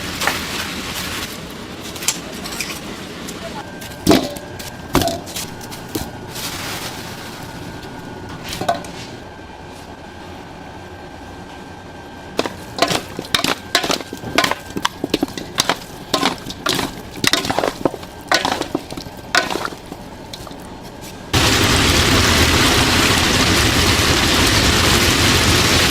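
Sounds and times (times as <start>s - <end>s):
loud steady noise: 10.7s - 25.9s
sharp knocks and cracks: 12.4s - 20.6s.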